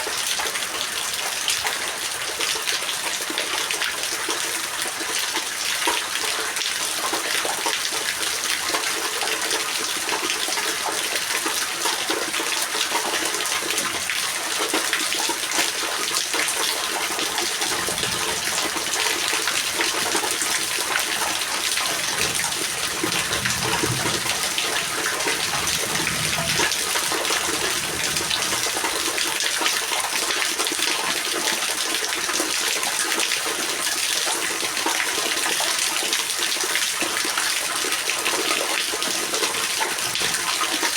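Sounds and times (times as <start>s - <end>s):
heavy rain splashing: 0.0s - 40.9s
faint low rumble: 17.3s - 29.4s.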